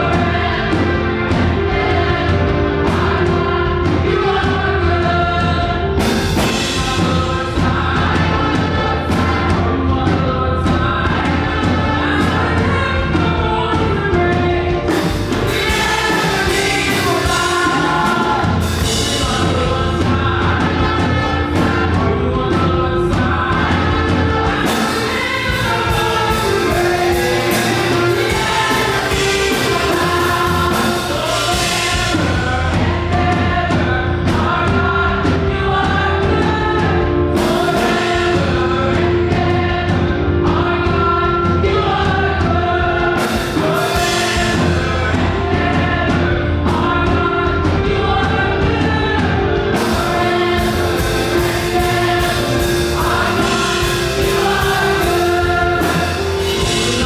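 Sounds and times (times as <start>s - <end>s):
band with beat and bass: 0.0s - 57.0s
gospel choir singing: 0.0s - 57.0s.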